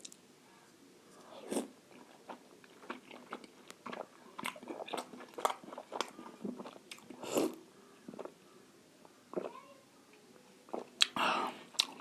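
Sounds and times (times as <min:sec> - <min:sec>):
person chewing dumpling: 0:01.4 - 0:08.3, 0:10.7 - 0:12.0.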